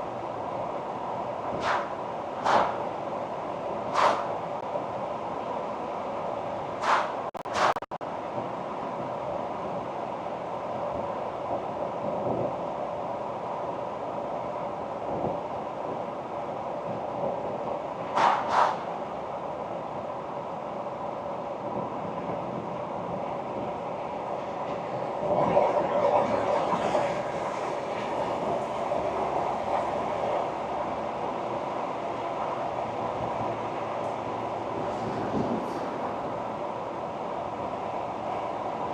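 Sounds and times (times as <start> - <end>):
tyre and wind noise: 21.6 - 36.8.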